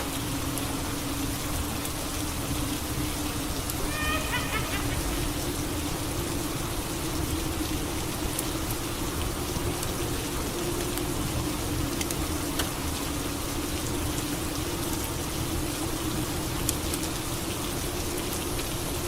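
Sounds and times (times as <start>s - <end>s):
steady rain falling: 0.0s - 19.0s
sharp drip ticks: 11.9s - 13.0s.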